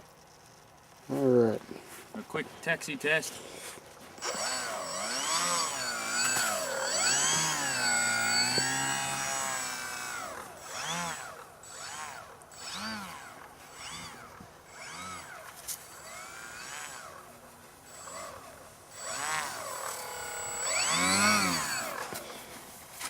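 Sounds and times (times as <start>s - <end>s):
model airplane motor revving: 4.2s - 22.4s.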